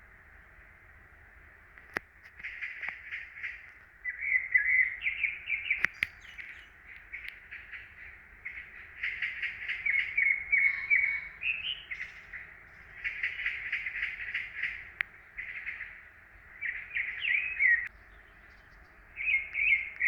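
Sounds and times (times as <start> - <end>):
songbirds chirping: 0.0 - 20.0
sharp click: 5.8 - 6.5.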